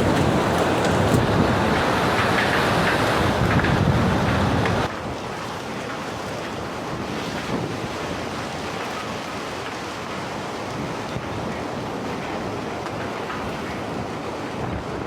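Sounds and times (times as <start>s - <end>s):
steady rushing noise: 0.0s - 5.0s.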